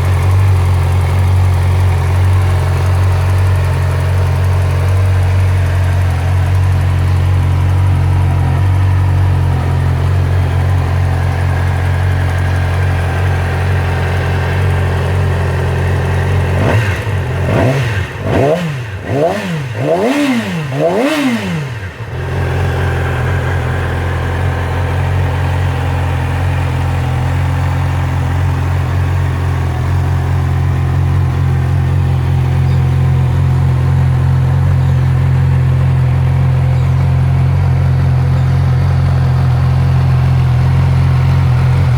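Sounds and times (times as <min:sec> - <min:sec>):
engine throttle blips: 0:00.0 - 0:41.9
motorcycle engine idling: 0:00.0 - 0:41.9.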